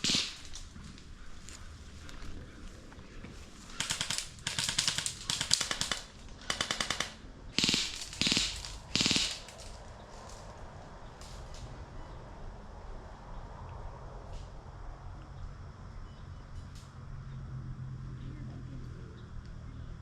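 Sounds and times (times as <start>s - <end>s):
airsoft guns firing bursts: 0.0s - 0.7s, 3.7s - 9.8s.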